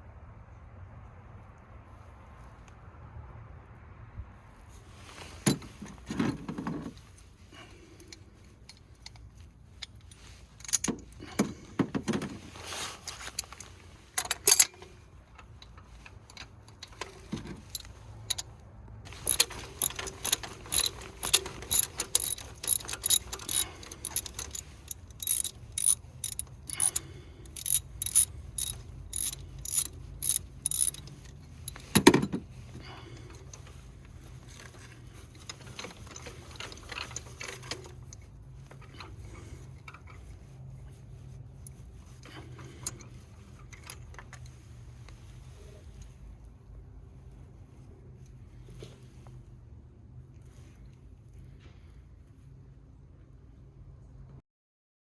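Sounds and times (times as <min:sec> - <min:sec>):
ratchet wrench clicking: 0:19.1 - 0:31.1.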